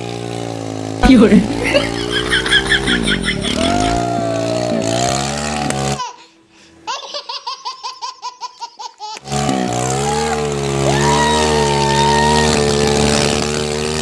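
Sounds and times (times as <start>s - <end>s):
tractor engine running: 0.0s - 6.0s
rapid high laughter: 1.3s - 6.0s.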